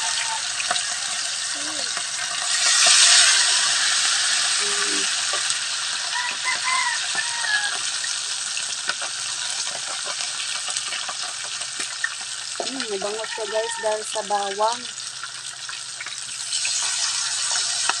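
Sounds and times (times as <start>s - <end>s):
spatula turning food: 0.0s - 7.9s, 8.9s - 14.6s, 16.0s - 18.0s
oil popping: 0.0s - 13.4s
fish sizzling in hot oil: 0.0s - 18.0s.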